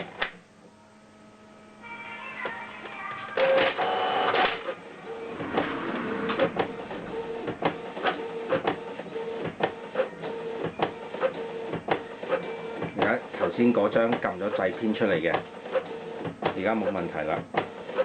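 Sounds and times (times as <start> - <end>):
printer motors whirring: 2.4 - 5.4, 6.7 - 18.0
print carriage shuttling with clicks: 10.6 - 18.0.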